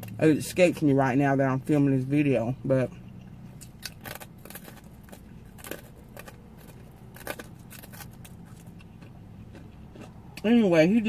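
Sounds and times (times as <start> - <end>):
crisp chewing crunches: 3.5 - 10.5.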